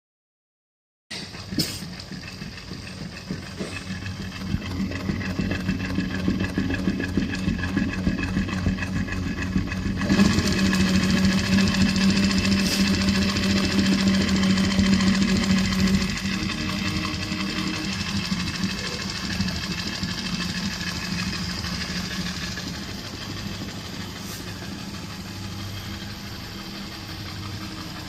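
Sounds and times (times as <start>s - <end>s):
sewing machine stitching: 1.1s - 28.0s
low motor tone: 1.2s - 28.0s.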